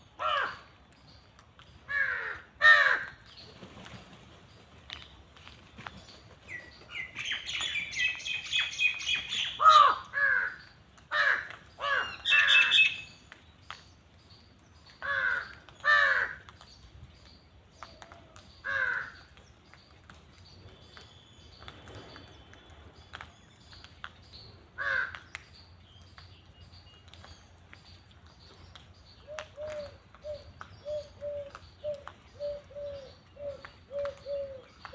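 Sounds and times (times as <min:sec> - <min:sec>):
crows cawing: 0:00.2 - 0:00.7, 0:01.9 - 0:03.2, 0:09.6 - 0:12.9, 0:15.0 - 0:16.5, 0:18.6 - 0:19.3, 0:24.8 - 0:25.3.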